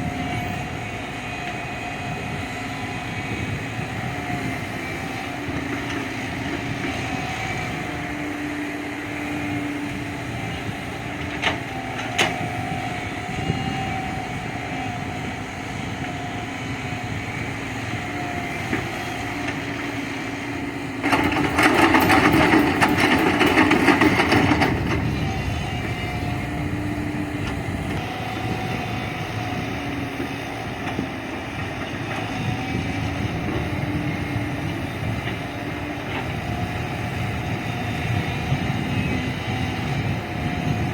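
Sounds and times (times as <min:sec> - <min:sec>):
diesel engine under load: 0:00.0 - 0:40.9.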